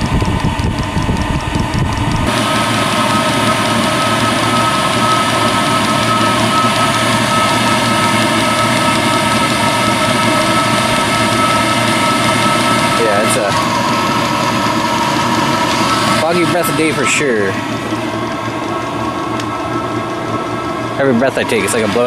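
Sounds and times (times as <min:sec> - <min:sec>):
low rumble: 0:00.0 - 0:02.7
heater fans whining: 0:00.0 - 0:22.0.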